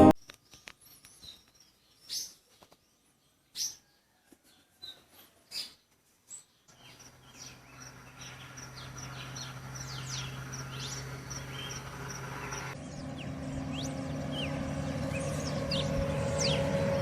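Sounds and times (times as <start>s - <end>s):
songbirds calling: 0.2s - 17.0s
steady low hum: 6.7s - 17.0s.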